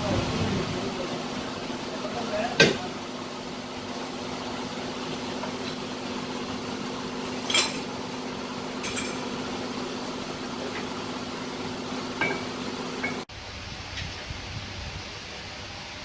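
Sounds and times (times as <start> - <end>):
steady mechanical hum: 0.0 - 16.0
metallic clinks of tools: 8.8 - 9.2.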